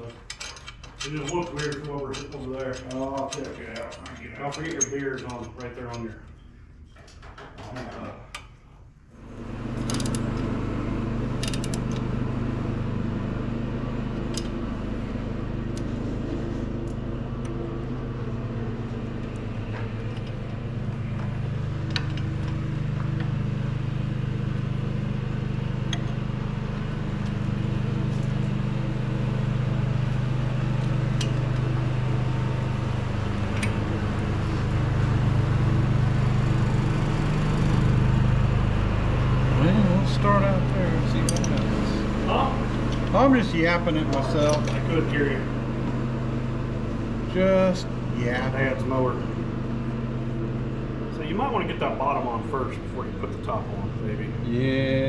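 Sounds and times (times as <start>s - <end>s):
lawn mower engine running: 9.2s - 54.4s.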